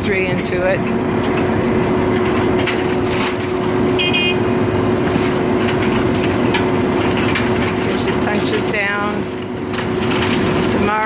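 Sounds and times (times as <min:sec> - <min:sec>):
excavator engine hum: 0:00.0 - 0:11.0.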